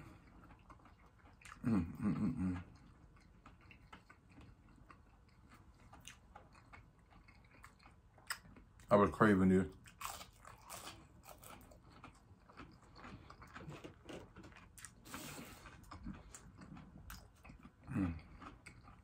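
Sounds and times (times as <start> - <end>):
person chewing crispy food: 0.0 - 19.0
person humming: 1.6 - 2.7.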